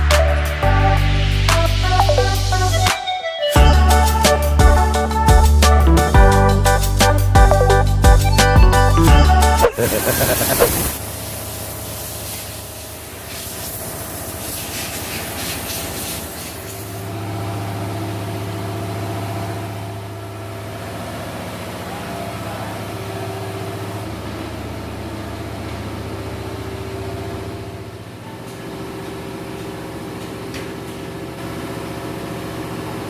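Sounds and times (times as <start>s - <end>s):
engine-room machinery humming: 16.6s - 33.0s.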